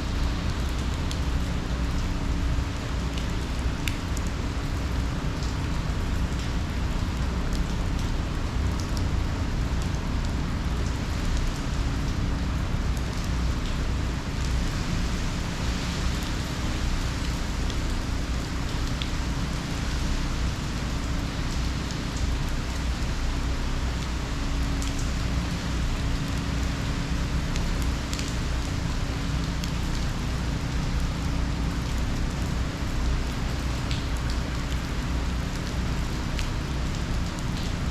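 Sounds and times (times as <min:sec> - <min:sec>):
heavy rain downpour: 0:00.0 - 0:37.9
raindrop ticks: 0:03.1 - 0:04.3, 0:05.3 - 0:11.6, 0:21.1 - 0:25.5, 0:26.1 - 0:30.7, 0:31.6 - 0:37.8.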